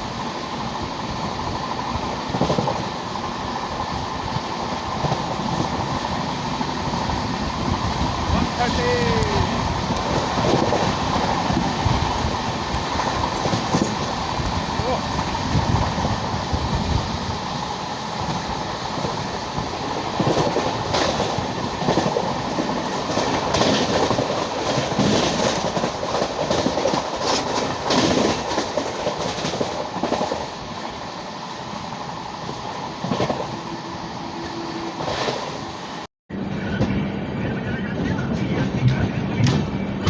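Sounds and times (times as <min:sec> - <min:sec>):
train coach rumbling on track: 0:00.0 - 0:40.0
wheels clattering over rail joints: 0:19.9 - 0:30.7.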